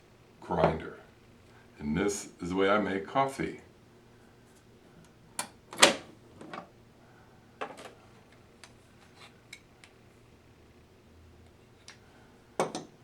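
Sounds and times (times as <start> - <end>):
hard coffee parts clicking and knocking: 12.6 - 13.0.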